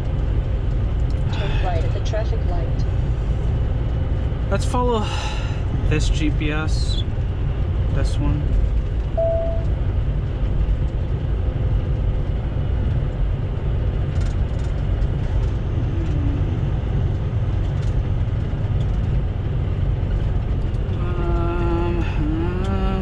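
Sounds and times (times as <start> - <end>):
diesel truck engine rumble: 0.0 - 23.0
road noise: 0.0 - 23.0.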